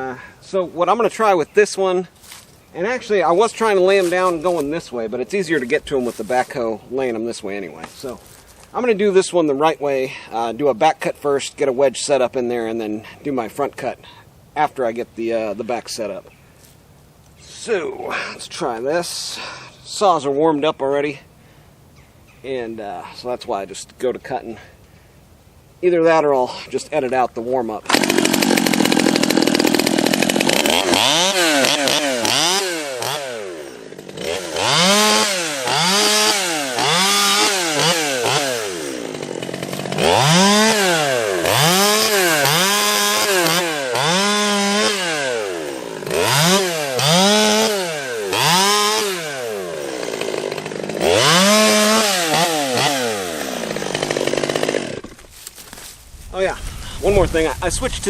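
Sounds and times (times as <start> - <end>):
chainsaw cutting a tree: 27.8 - 55.7.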